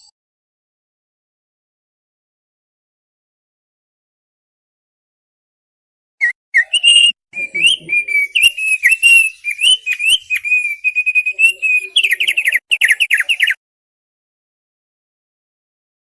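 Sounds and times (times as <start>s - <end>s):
bird singing whistled notes: 6.2s - 13.6s.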